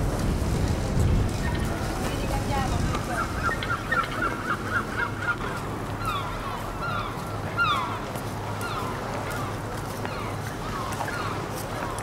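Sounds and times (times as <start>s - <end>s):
birds calling: 2.6s - 12.0s.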